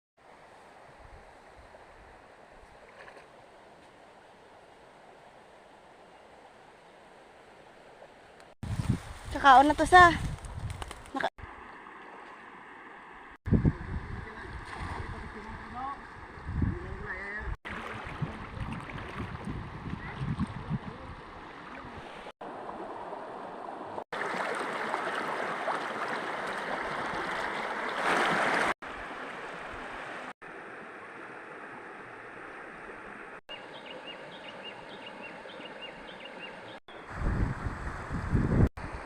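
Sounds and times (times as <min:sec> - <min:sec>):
running gurgling water: 0:17.6 - 0:33.4.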